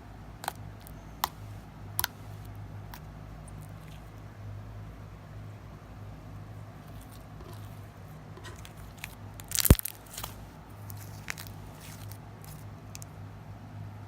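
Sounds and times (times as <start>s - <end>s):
slime squeezed and stretched: 8.4s - 12.6s
slime popping: 8.4s - 13.1s.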